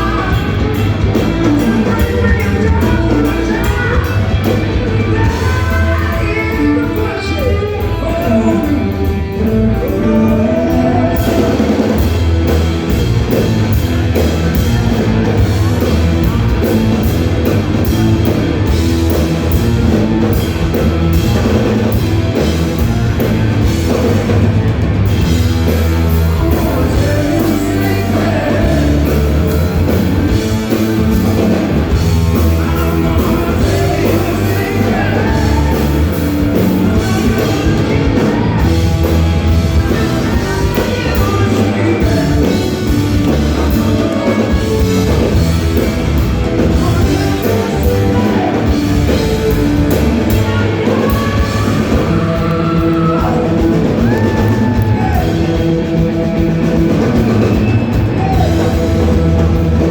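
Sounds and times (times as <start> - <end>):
person singing: 0.0 - 12.1, 25.7 - 45.9, 46.5 - 59.9
drum kit: 0.0 - 59.9
electric guitar: 0.0 - 59.9.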